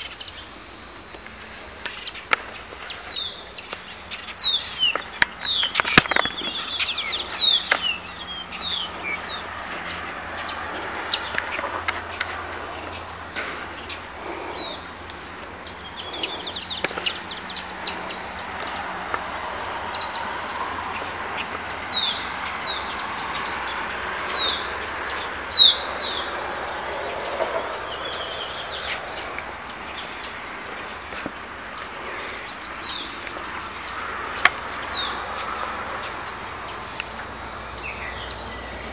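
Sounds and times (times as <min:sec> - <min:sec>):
birds chirping: 0:00.0 - 0:38.9
high-pitched insect drone: 0:00.0 - 0:38.9.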